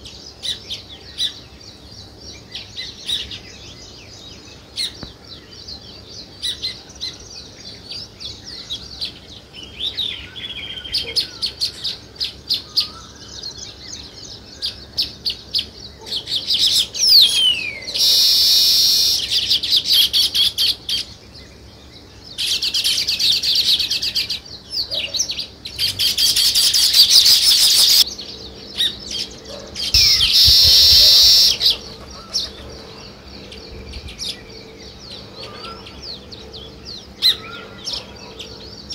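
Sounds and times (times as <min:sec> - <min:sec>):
songbirds chirping: 0:00.0 - 0:38.9
fast bird chattering: 0:22.4 - 0:28.0, 0:28.8 - 0:34.6.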